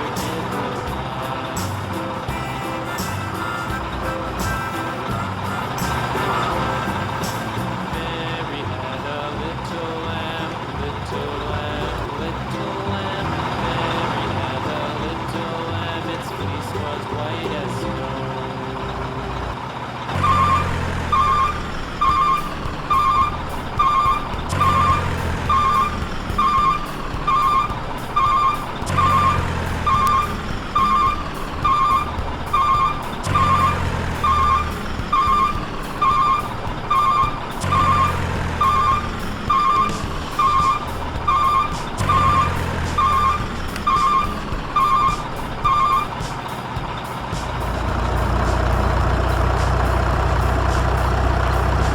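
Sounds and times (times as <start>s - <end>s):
low engine rumble: 0.0s - 51.9s
reversing alarm beeps: 20.2s - 46.2s.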